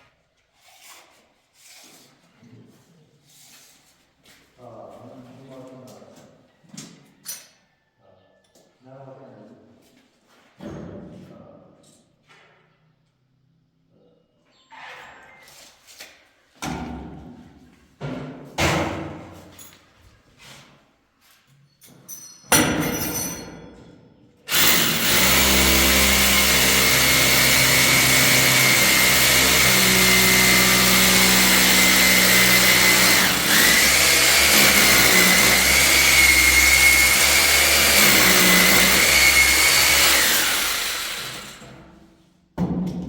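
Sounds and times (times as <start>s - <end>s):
electric power tool whining: 24.5s - 41.7s.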